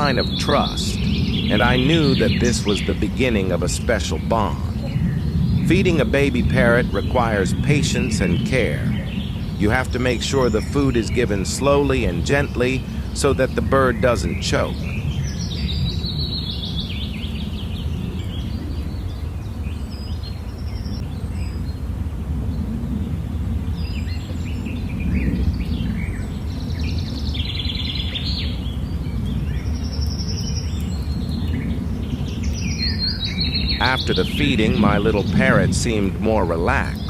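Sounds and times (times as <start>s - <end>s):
low rumble: 0.0s - 19.2s, 22.0s - 37.0s
buzzy pulsed bird calls: 0.0s - 37.0s.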